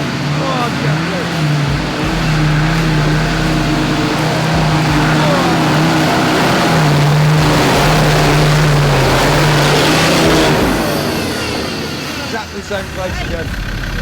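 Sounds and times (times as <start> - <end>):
off-road engine at high revs: 0.0 - 14.0.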